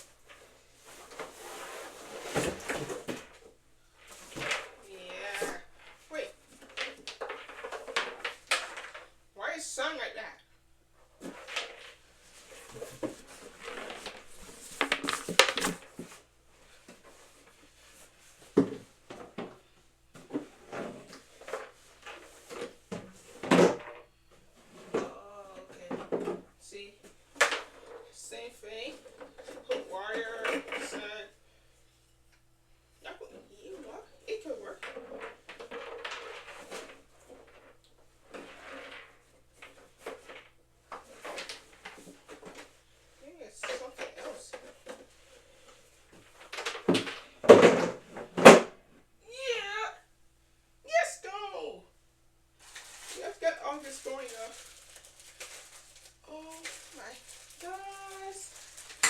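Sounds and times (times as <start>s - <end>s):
handling noises unpacking equipment: 0.0s - 9.2s, 11.0s - 31.2s, 34.5s - 48.8s, 52.6s - 59.0s
faint rustling: 0.0s - 23.4s, 52.5s - 59.0s.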